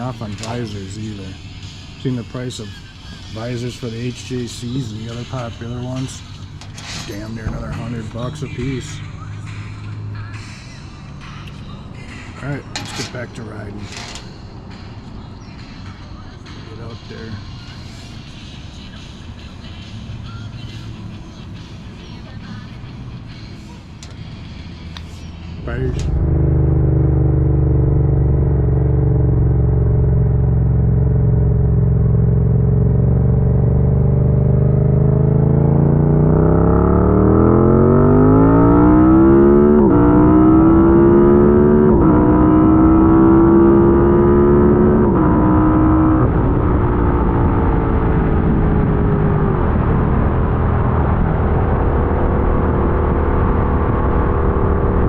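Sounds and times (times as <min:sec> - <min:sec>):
motorcycle engine accelerating: 0:24.3 - 0:55.0.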